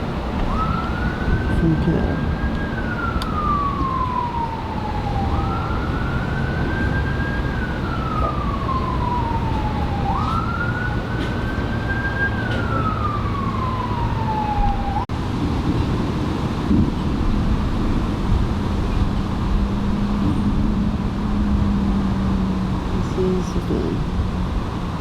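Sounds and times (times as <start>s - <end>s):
siren wailing: 0.0s - 15.1s.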